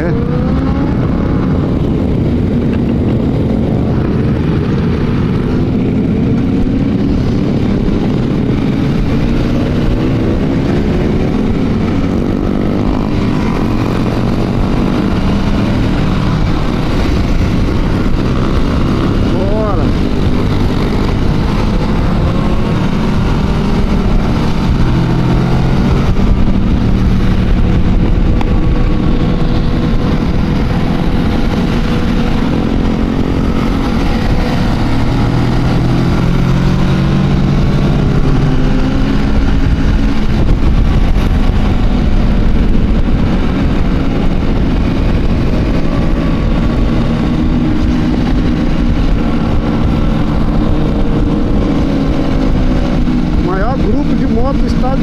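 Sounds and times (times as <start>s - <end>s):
motorcycle engines revving: 0.0s - 55.0s
wind rumble on microphone: 0.0s - 55.0s.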